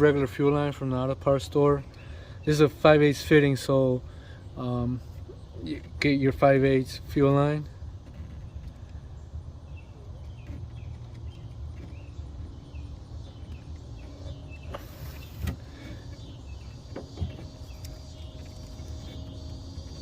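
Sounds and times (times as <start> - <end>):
low outdoor rumble: 0.0 - 20.0
faint chirping: 7.6 - 20.0.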